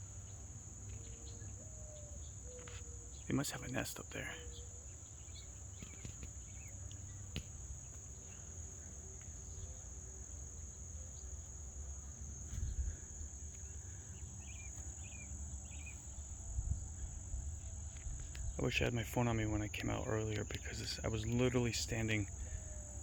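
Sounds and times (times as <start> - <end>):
high insect trill: 0.0 - 23.0.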